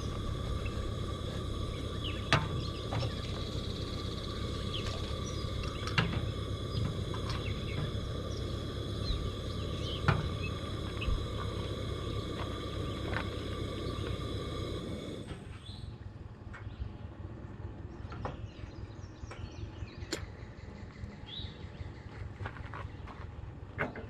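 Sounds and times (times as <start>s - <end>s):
bird chirps: 0.0s - 14.8s
steady high drone: 0.0s - 16.0s
low rush of noise: 0.0s - 18.0s.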